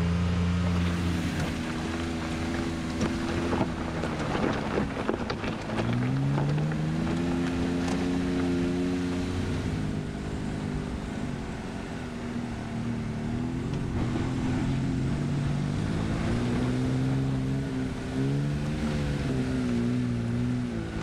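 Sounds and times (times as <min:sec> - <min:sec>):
truck engine changing revs: 0:12.5 - 0:21.0.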